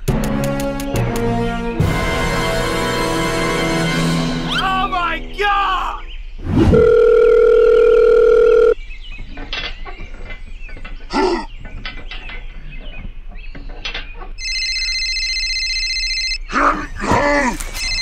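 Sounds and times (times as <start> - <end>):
high electronic ringing tone: 6.6 - 8.8, 14.4 - 16.4, 17.8 - 18.0
dial tone hum: 6.7 - 8.8, 14.4 - 16.4.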